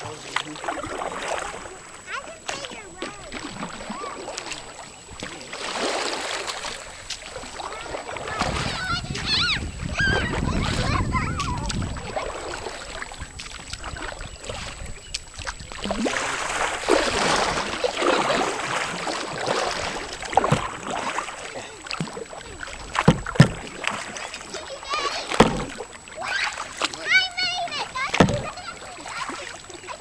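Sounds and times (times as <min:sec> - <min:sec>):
water splashing around kayak: 0:00.0 - 0:30.0
knocks on hull: 0:15.4 - 0:21.1, 0:22.8 - 0:24.1, 0:25.2 - 0:25.9, 0:27.8 - 0:28.8.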